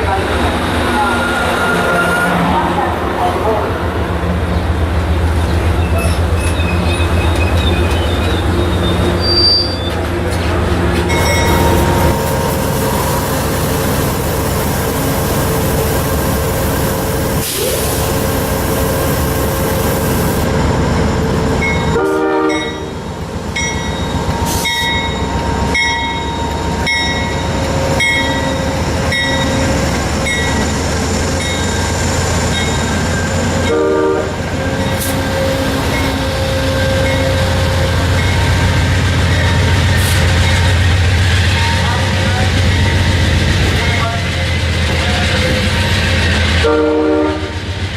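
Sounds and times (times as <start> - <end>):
diesel locomotive engine rumbling: 0.0 - 47.9
bell ringing: 11.1 - 12.1
train horn blasts: 21.9 - 23.0, 33.6 - 34.4, 46.6 - 47.7.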